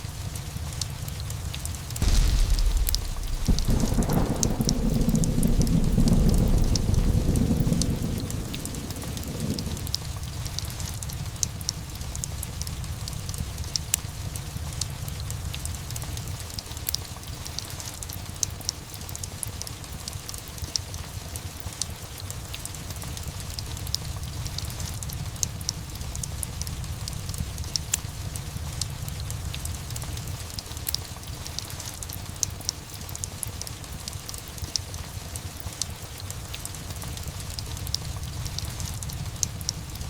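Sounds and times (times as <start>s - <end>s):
sharp crackles and ticks: 0.0s - 40.0s
steady rain: 0.0s - 40.0s
thunder rumble: 2.0s - 11.4s.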